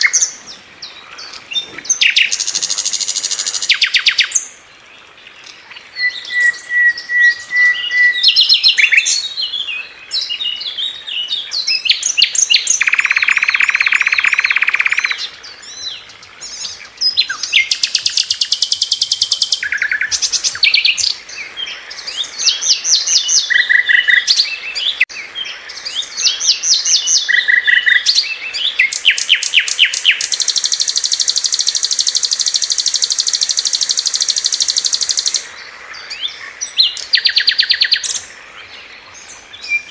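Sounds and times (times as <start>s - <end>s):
bird song with trills: 0.0s - 39.9s
clear bird whistles: 6.0s - 9.2s, 12.2s - 15.2s, 28.8s - 35.4s.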